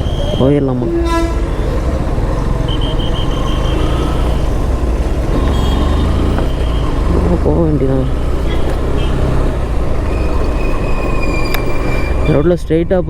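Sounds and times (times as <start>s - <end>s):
motorcycle engine running: 0.0s - 10.1s
road traffic noise: 0.0s - 13.0s.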